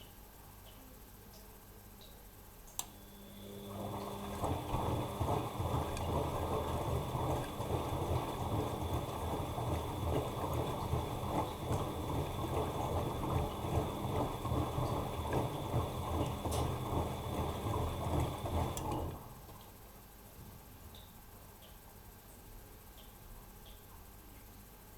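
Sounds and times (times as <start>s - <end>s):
washing machine motor whine: 2.8s - 19.7s
laundry and water sloshing: 3.7s - 19.6s.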